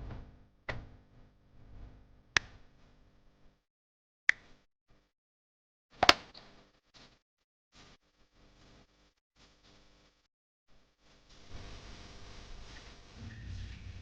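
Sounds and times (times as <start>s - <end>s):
faint hum: 11.4s - 14.0s.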